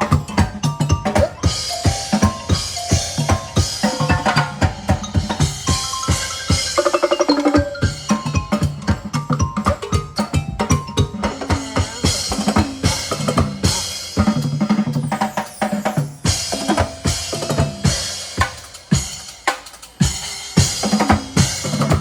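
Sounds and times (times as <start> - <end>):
percussion band drumming: 0.0 - 22.0.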